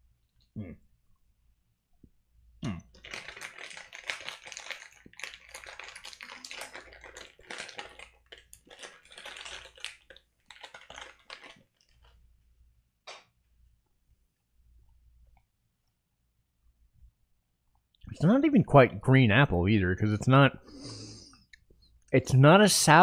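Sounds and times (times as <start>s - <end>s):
crunching and chewing gummy candy: 2.6s - 12.2s.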